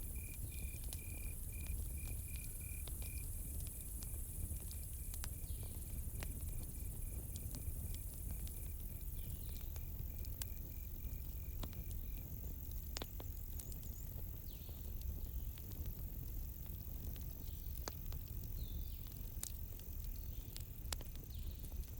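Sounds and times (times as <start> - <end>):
cricket chirping: 0.0 - 14.1
campfire crackling and popping: 0.0 - 21.9.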